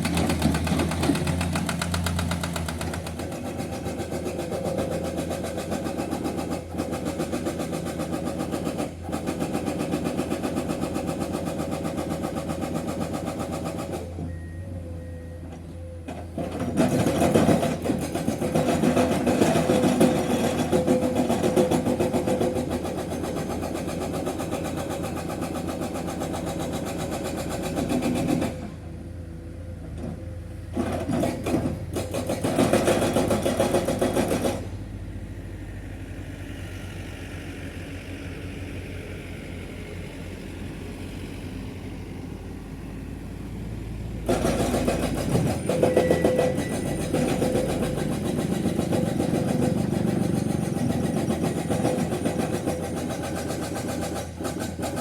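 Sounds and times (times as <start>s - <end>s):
diesel engine running: 8.3s - 55.0s
hydraulic breaker hammering rock: 16.4s - 28.7s, 30.8s - 34.7s, 44.2s - 55.0s.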